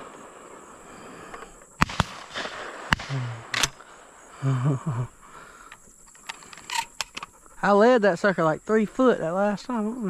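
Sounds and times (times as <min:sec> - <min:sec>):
shotgun shots: 0:01.8 - 0:03.8.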